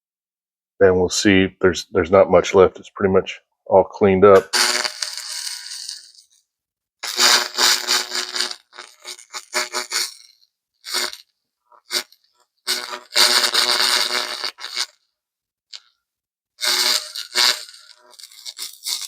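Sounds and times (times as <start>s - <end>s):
laser buzzing crackle: 4.4s - 6.4s, 7.0s - 11.2s, 11.8s - 15.0s, 16.6s - 19.0s.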